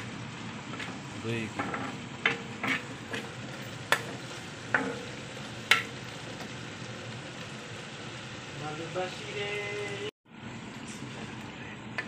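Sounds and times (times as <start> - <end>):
masala frying in a pan: 0.0 - 12.0
spatula clacking against a pan: 1.6 - 3.2, 5.7 - 6.0.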